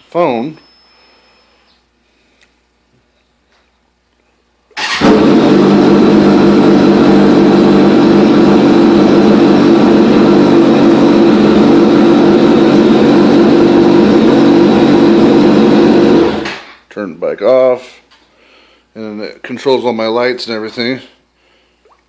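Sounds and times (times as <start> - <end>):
motorcycle engine starting and idling: 4.8 - 16.8.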